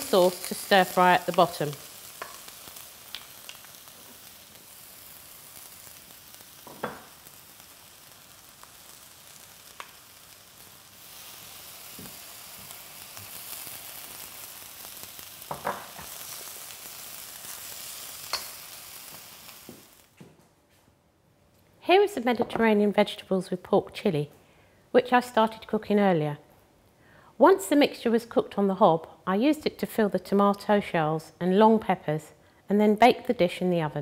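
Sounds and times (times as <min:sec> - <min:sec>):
food sizzling in a wok: 0:00.0 - 0:20.2.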